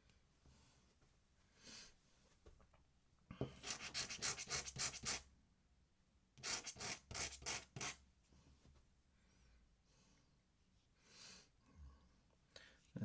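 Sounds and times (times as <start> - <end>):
pen scratching on paper: 3.6 - 5.2, 6.4 - 8.0.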